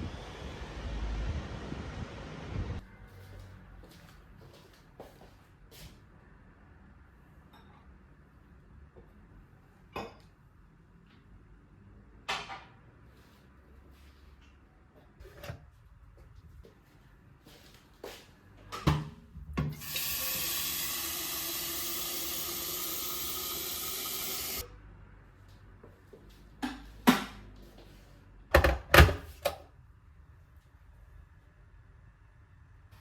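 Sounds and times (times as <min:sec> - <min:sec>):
water tap running: 0:19.8 - 0:24.6.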